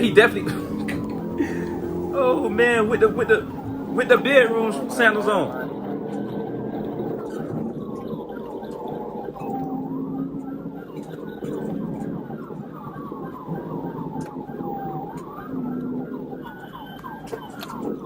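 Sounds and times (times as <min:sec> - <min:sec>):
police siren yelp: 0:00.0 - 0:05.7
police siren wail: 0:00.0 - 0:07.0.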